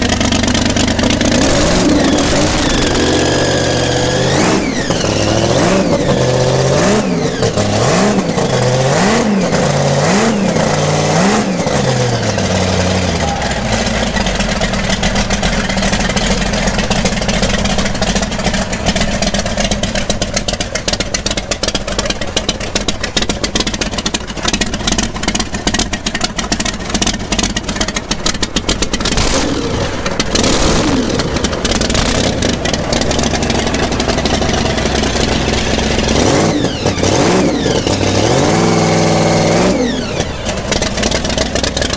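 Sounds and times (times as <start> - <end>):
drag car engine revving: 0.0 - 41.9
exhaust popping: 0.0 - 41.9
rough lumpy engine idle: 0.0 - 41.9.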